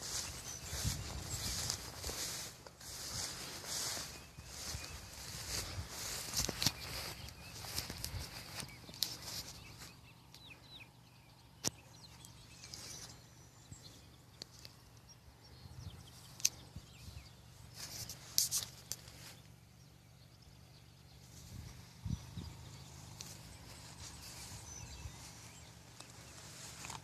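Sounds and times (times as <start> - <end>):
brief rustles: 0.0 - 9.9, 17.7 - 19.4
faint bird chirps: 0.0 - 27.0.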